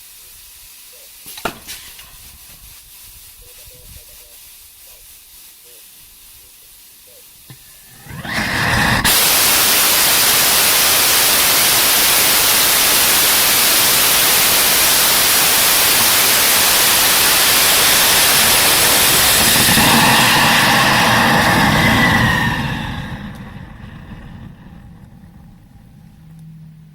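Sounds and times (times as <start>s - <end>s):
rocket engine roaring: 7.8s - 26.9s
steady tones: 13.2s - 26.9s.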